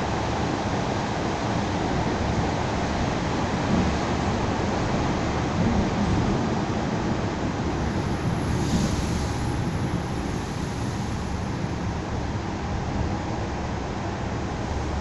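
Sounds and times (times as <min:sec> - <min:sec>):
electric train rumbling: 0:00.0 - 0:15.0
brief hiss: 0:08.4 - 0:11.6.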